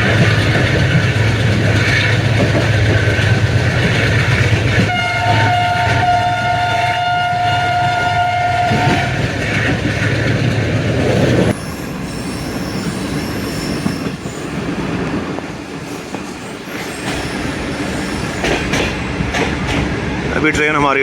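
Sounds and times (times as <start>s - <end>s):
moving train rail rumble: 0.0s - 21.0s
locomotive horn: 4.8s - 9.2s
faint high wheel squeal: 11.5s - 14.7s, 15.9s - 18.6s.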